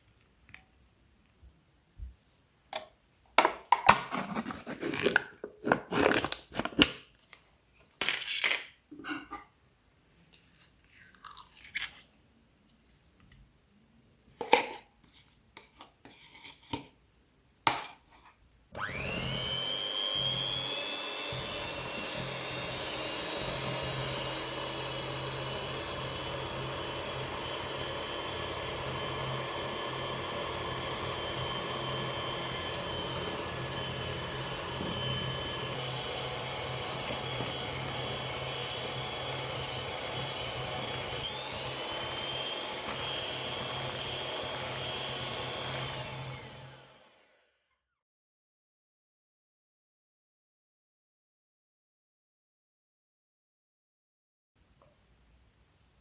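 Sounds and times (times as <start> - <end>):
kitchen appliance motor whining: 18.7 - 47.7.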